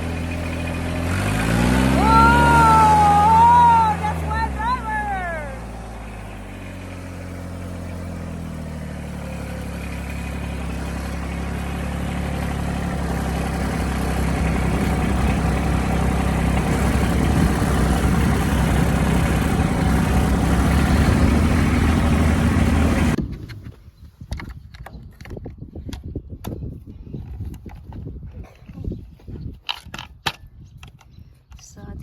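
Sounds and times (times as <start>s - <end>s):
vehicle engine running: 0.0s - 23.2s.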